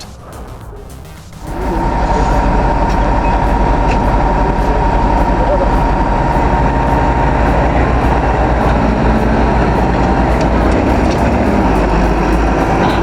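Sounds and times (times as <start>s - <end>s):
heavy machinery rumbling: 0.0s - 13.0s.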